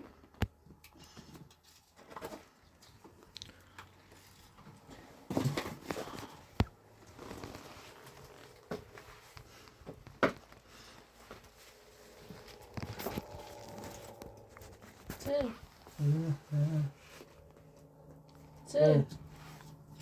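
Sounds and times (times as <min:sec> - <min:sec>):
irregular crunching: 0:10.5 - 0:16.1.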